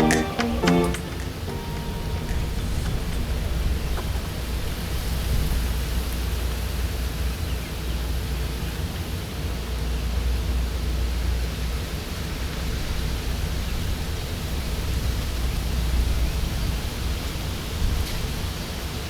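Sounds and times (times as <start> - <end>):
even hiss: 0.0 - 4.2.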